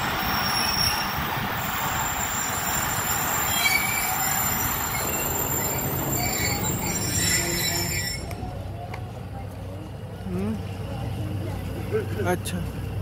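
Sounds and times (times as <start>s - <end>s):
high wheel squeal: 0.0s - 8.5s
train wheels rumbling on rail: 0.0s - 13.0s.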